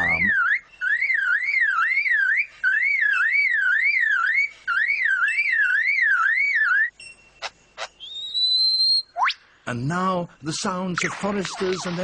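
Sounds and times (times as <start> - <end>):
lyrebird mimicking car alarm: 0.0 - 6.9.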